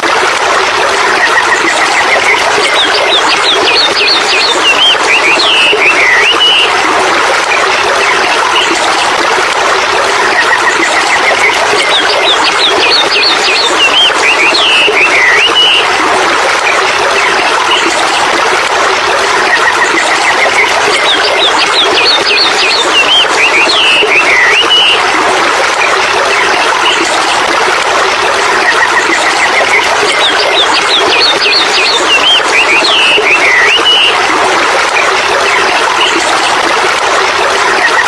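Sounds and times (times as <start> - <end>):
running water: 0.0 - 38.0
birds chirping and whistling: 2.0 - 6.7, 11.4 - 15.9, 20.2 - 25.0, 29.2 - 34.2.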